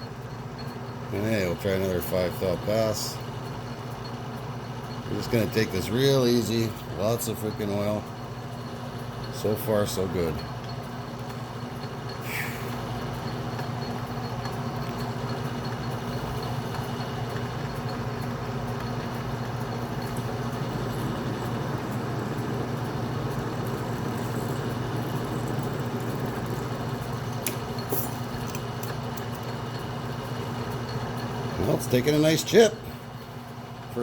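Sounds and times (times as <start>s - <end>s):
metal lathe cutting: 5.2s - 10.9s, 11.6s - 32.8s.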